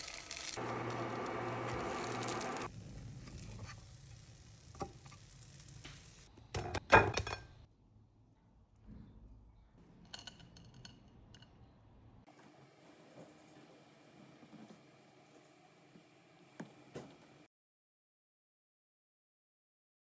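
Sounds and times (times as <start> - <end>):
kitchenware clattering: 6.6 - 7.6, 10.0 - 11.5
kitchenware clinking: 6.6 - 7.6, 10.0 - 11.6.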